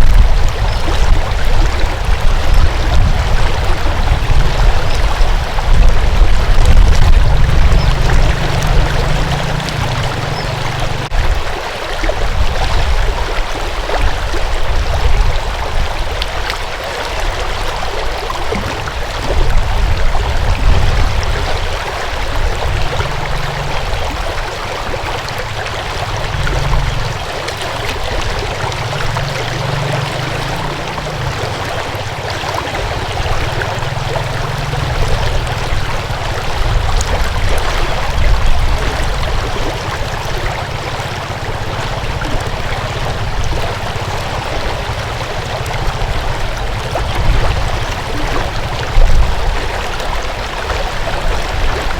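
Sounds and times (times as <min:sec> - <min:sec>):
deep low rumble: 0:00.0 - 0:11.3, 0:25.7 - 0:49.6
water rushing in a stream: 0:00.0 - 0:51.9.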